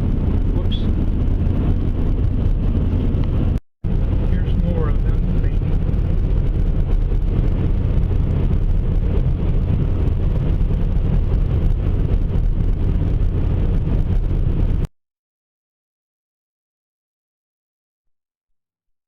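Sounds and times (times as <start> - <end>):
car driving interior rumble: 0.0 - 14.9.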